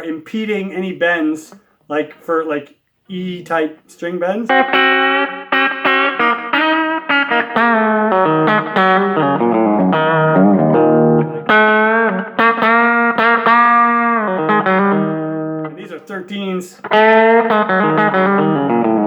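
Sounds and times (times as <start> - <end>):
electric guitar lick with bends: 4.5 - 16.0, 16.8 - 19.0.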